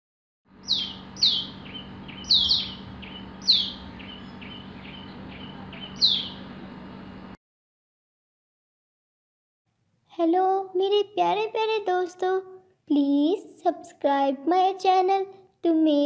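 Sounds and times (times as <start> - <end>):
soft bird chirps: 0.6 - 6.6.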